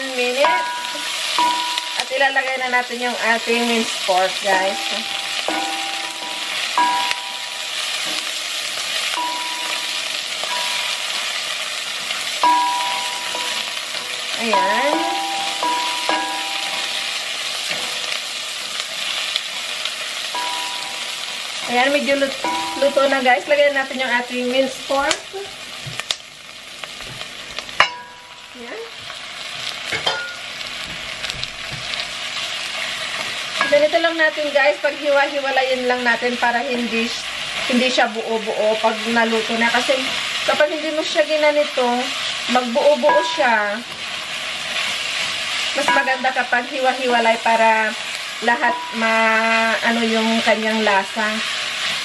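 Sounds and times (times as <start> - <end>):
spatula stirring in pan: 0.0 - 24.9
onions sizzling in hot oil: 0.0 - 52.0.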